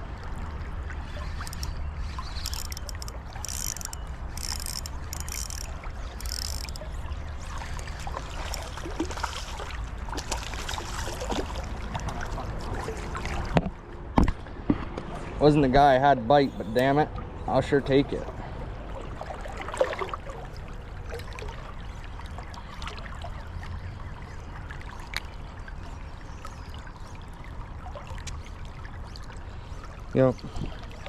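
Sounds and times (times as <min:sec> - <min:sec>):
creek water running: 0:00.0 - 0:13.8
fish splashing: 0:01.1 - 0:13.6.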